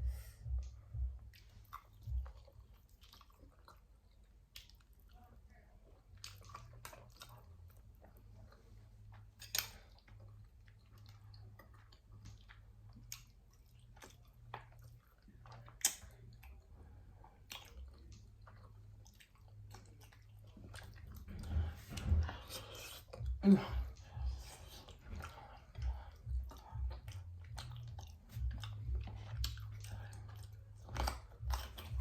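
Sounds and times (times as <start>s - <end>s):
chewing and mouth smacks: 0.0s - 32.0s
low steady hum: 0.0s - 32.0s.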